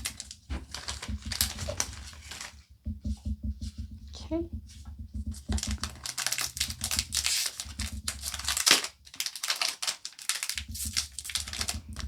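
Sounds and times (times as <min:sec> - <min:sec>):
foil wrapper crinkling and tearing: 0:05.9 - 0:11.8.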